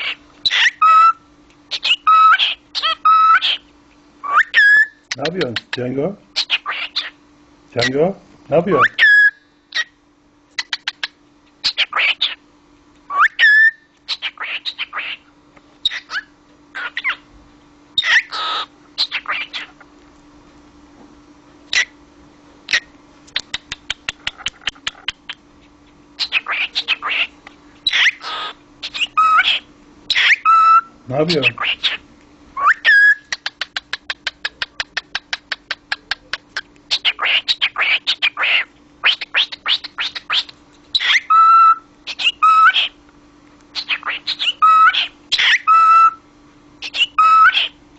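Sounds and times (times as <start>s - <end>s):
cockatiel chirping: 0.0s - 3.6s, 4.2s - 5.7s, 6.4s - 7.2s, 8.8s - 10.0s, 10.6s - 12.4s, 13.1s - 17.2s, 18.0s - 19.8s, 26.2s - 32.0s, 32.6s - 43.0s, 43.7s - 46.2s, 46.8s - 47.8s
cockatiel whistled notes: 4.2s - 5.0s, 8.9s - 9.4s, 13.1s - 13.8s, 28.9s - 30.9s, 32.6s - 33.4s, 39.1s - 42.9s, 43.8s - 46.2s, 46.9s - 47.7s
harsh squawk: 6.4s - 7.2s, 26.2s - 32.0s, 32.6s - 43.0s, 43.8s - 46.2s, 46.8s - 47.8s.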